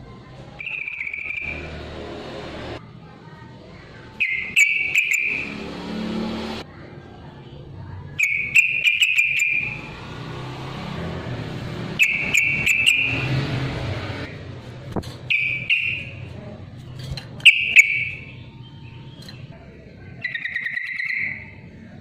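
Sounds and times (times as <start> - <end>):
bird chattering song: 0.6 - 1.6, 4.2 - 5.6, 8.2 - 9.8, 12.0 - 13.3, 15.3 - 16.3, 17.4 - 21.6.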